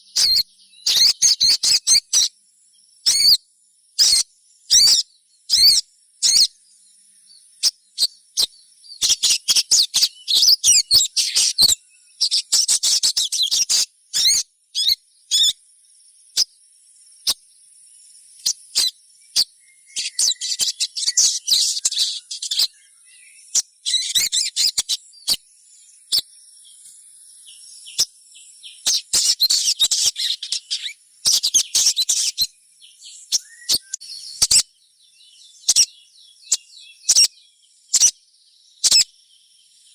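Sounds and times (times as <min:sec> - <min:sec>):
bird chirping and chattering: 0:00.0 - 0:02.3, 0:03.0 - 0:03.4, 0:04.0 - 0:06.6, 0:07.5 - 0:15.6, 0:16.3 - 0:16.5, 0:18.3 - 0:26.3, 0:27.5 - 0:34.7, 0:35.6 - 0:38.2, 0:38.8 - 0:39.1.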